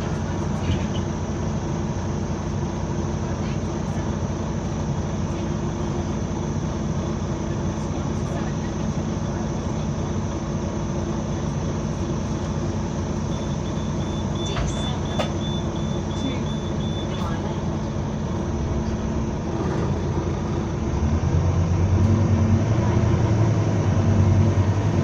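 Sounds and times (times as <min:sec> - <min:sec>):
bus engine running: 0:00.0 - 0:25.0
rapid high-pitched pulsing beep: 0:13.3 - 0:17.3.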